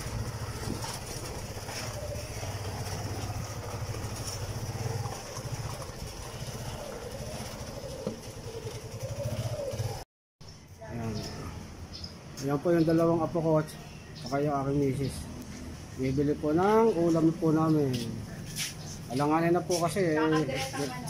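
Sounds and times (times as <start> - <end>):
motorcycle engine chugging: 0.0 - 10.0.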